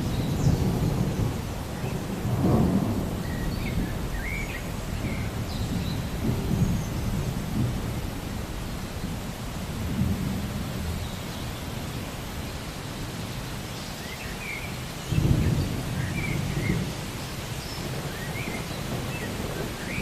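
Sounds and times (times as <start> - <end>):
rolling thunder: 0.0 - 11.0, 15.1 - 20.0
steady rain: 0.0 - 20.0.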